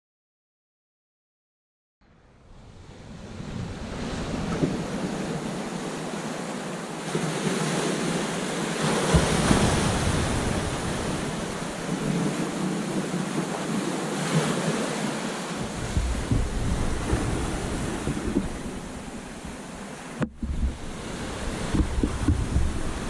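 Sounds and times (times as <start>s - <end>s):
ocean waves breaking on beach: 2.0s - 23.0s.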